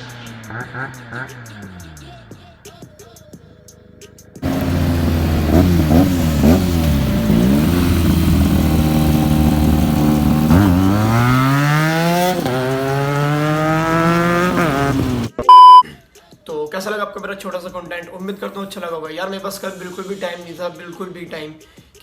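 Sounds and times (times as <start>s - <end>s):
motorcycle engine revving: 0.0s - 2.8s, 4.4s - 15.8s.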